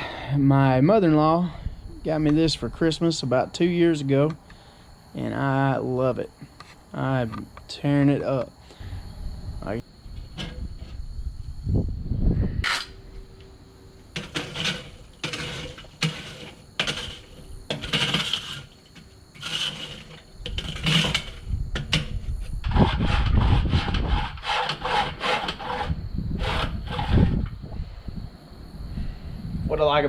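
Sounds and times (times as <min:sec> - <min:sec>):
wind buffeting microphone: 0:08.8 - 0:13.1, 0:20.3 - 0:24.5, 0:25.6 - 0:30.0
scraping strokes: 0:14.1 - 0:27.5.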